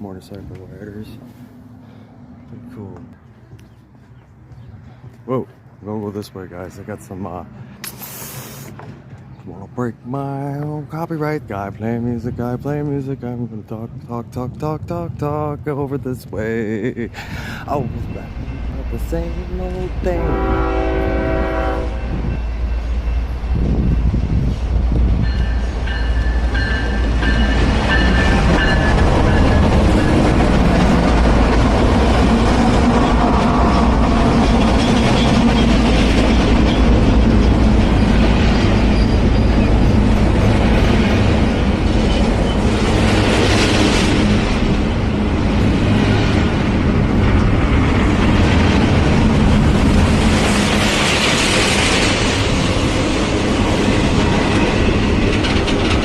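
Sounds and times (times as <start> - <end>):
train wheels rumbling on rail: 11.7 - 56.0.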